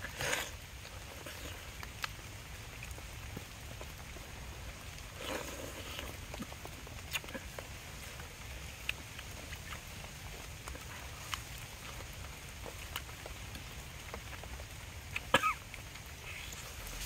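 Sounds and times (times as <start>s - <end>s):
light rain: 0.0s - 17.0s.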